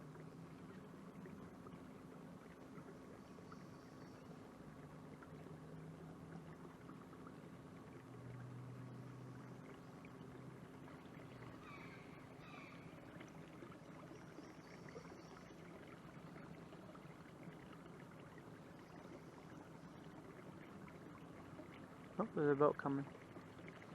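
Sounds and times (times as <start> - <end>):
steady low hum: 0.0 - 23.9
faint bird chirps: 11.4 - 13.2, 13.8 - 15.7.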